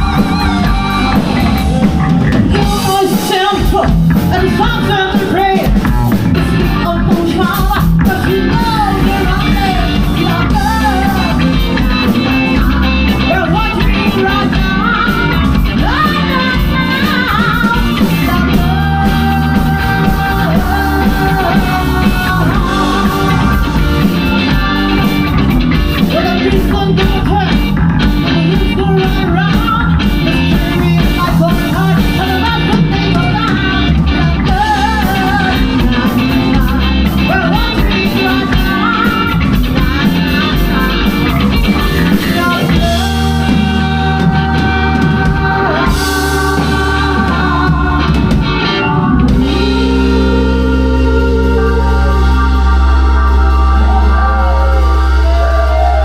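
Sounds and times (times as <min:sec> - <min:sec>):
person singing: 0:00.0 - 0:56.0
rock band playing live: 0:00.0 - 0:56.0.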